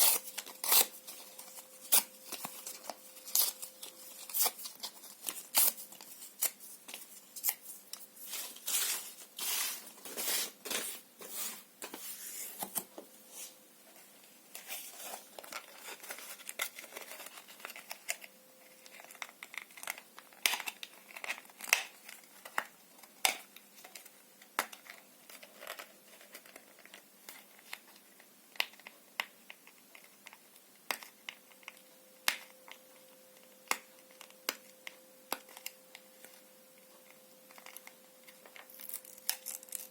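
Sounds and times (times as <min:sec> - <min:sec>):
paper crinkling and rustling: 0:00.0 - 0:12.9, 0:13.9 - 0:23.1, 0:23.8 - 0:28.9.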